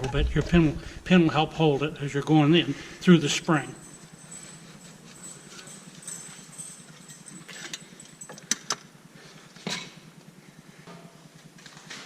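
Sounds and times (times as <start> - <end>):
metal tools clinking: 3.0 - 8.9.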